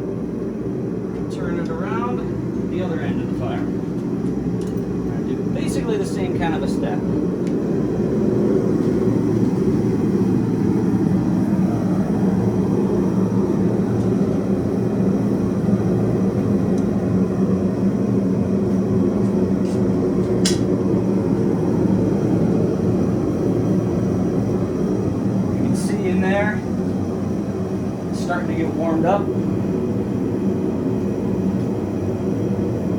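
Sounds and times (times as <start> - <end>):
gas forge burner roaring: 0.0 - 32.9.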